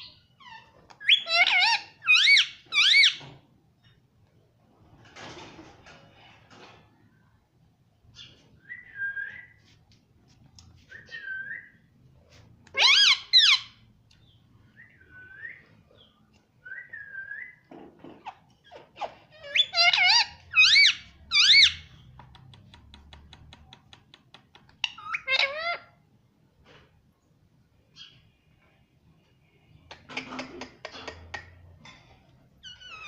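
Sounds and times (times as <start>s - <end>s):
parakeet whistling and calling: 1.0s - 3.2s, 12.7s - 13.8s, 19.4s - 21.9s.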